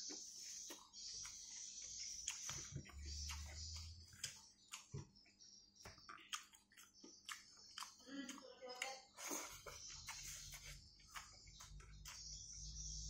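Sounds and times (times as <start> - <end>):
wet mouth clicks and smacks: 5.8 - 8.0.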